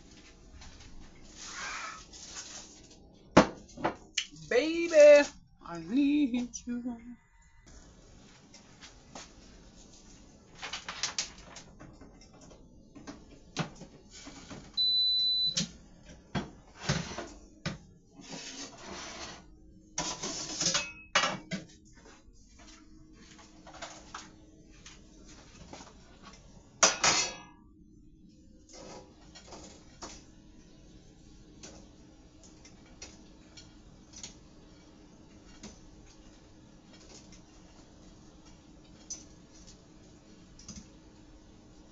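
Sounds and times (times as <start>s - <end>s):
low steady hum: 0.0s - 10.6s
dishes and utensils clattering: 20.0s - 21.8s, 26.8s - 27.6s.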